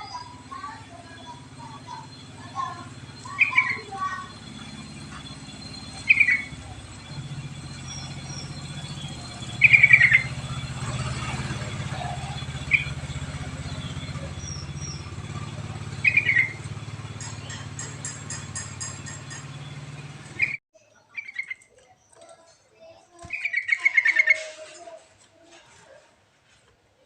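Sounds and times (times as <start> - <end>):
bird chirping bubbly phrases: 0.0 - 17.9, 19.2 - 22.3, 23.2 - 24.4
steady low hum: 0.0 - 20.6.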